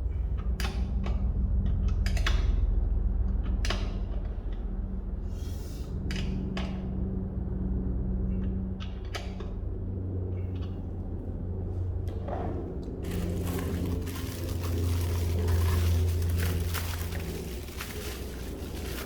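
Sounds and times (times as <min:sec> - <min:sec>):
air compressor humming: 0:13.0 - 0:19.0.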